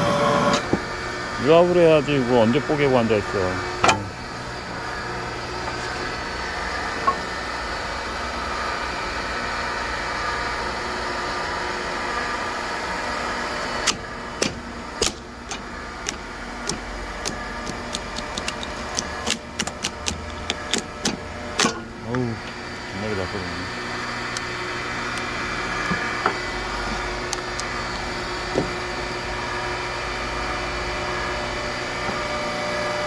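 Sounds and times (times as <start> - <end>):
hydraulic pump humming: 0.0 - 33.0
log cracking and snapping: 14.4 - 21.1.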